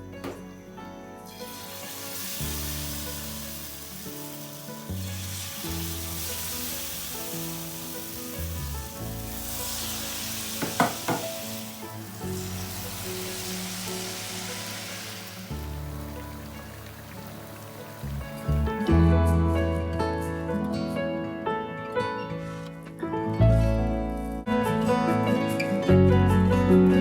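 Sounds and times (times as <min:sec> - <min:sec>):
hot oil sizzling: 0:00.0 - 0:19.0
soft background music: 0:00.0 - 0:27.0.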